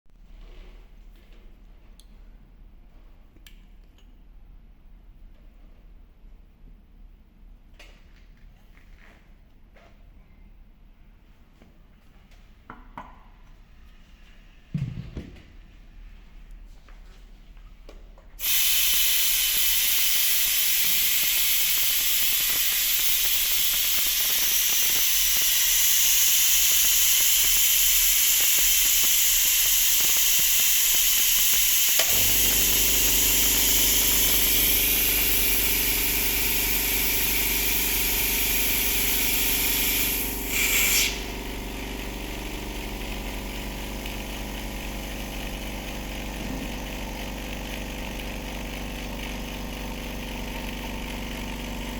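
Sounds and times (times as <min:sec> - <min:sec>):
loud steady air hiss: 0:18.4 - 0:44.8
steady motor hum: 0:18.4 - 0:51.9.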